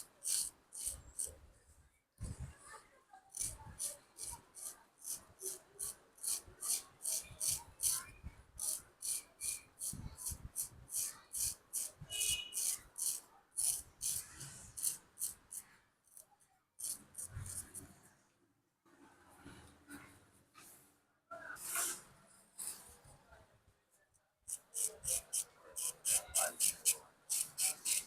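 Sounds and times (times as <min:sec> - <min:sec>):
razor scraping over scalp: 0:00.0 - 0:01.3, 0:03.3 - 0:08.0, 0:08.6 - 0:16.2, 0:16.8 - 0:17.8, 0:24.5 - 0:28.0.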